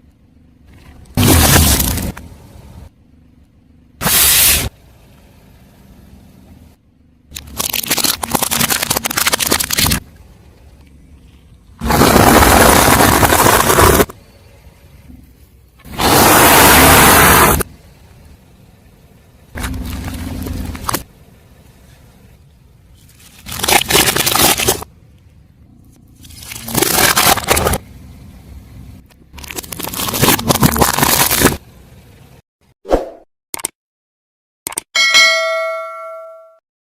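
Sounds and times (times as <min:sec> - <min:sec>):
tyre crushing brittle objects: 0:07.3 - 0:10.0, 0:23.2 - 0:24.9, 0:26.2 - 0:27.8, 0:29.3 - 0:31.6
loud burst: 0:11.8 - 0:14.1.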